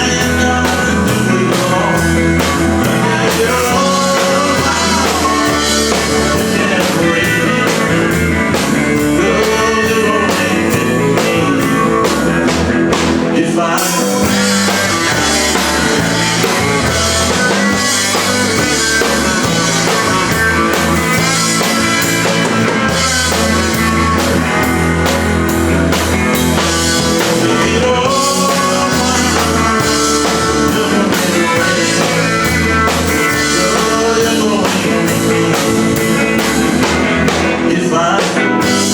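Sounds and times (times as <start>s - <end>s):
guitar: 0.0s - 38.9s
live band playing country-rock: 0.0s - 38.9s
steady drum beat: 0.0s - 38.9s.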